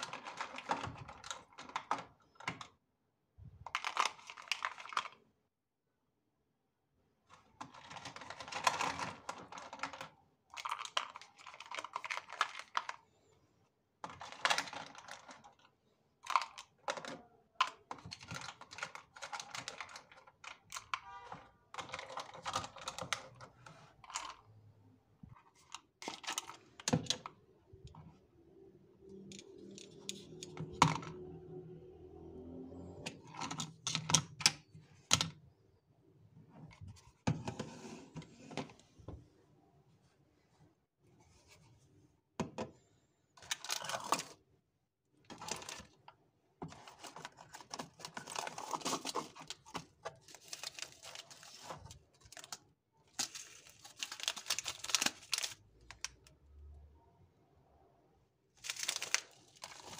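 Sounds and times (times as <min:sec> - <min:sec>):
household items clicking and rattling: 0:00.0 - 0:02.7, 0:07.6 - 0:13.0, 0:14.0 - 0:21.0, 0:21.7 - 0:24.4, 0:45.3 - 0:56.3, 0:58.6 - 0:59.9.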